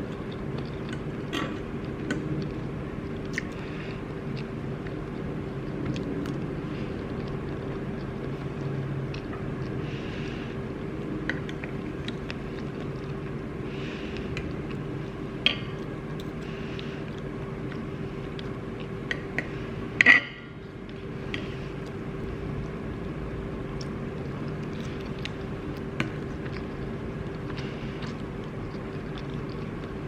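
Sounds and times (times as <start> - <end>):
low drone hum: 0.0 - 30.0.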